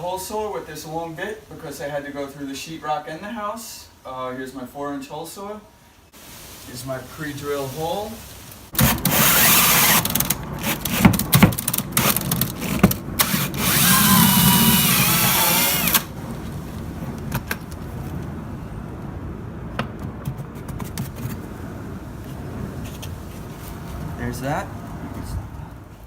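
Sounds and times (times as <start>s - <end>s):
low steady noise: 0.0s - 26.0s
power drill whining: 8.8s - 11.1s, 12.0s - 16.1s.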